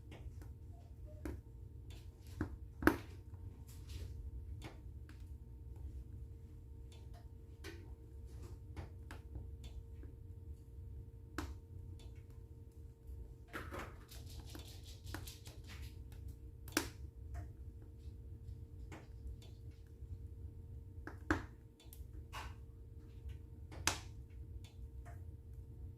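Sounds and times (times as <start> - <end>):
low steady hum: 0.0 - 25.9
wood fire crackling and popping: 1.2 - 5.4, 13.5 - 25.2.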